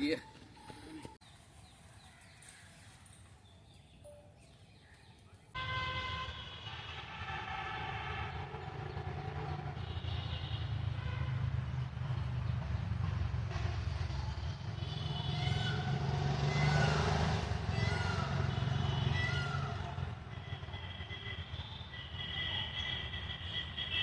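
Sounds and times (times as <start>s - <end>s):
passing vehicle rumble: 6.7s - 24.0s.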